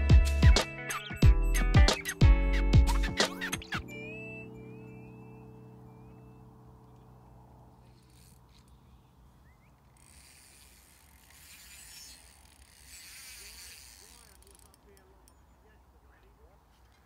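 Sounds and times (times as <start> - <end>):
music: 0.0 - 6.9
fishing reel whirring: 7.7 - 15.4.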